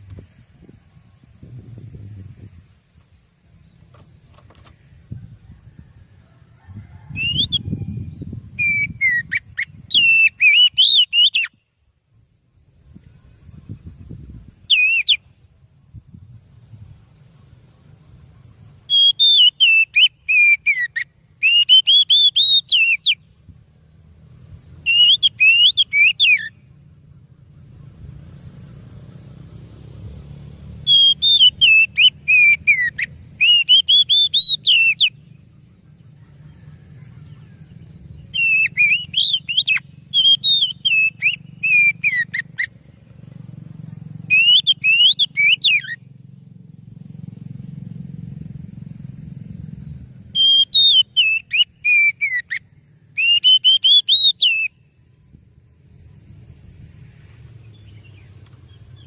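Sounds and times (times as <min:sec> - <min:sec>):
steady low hum: 0:00.0 - 0:06.7
bird singing whistled phrases: 0:07.1 - 0:11.7, 0:14.7 - 0:15.3, 0:18.9 - 0:23.3, 0:24.8 - 0:26.7, 0:30.8 - 0:35.3, 0:36.6 - 0:42.7, 0:44.2 - 0:46.0, 0:50.4 - 0:55.0.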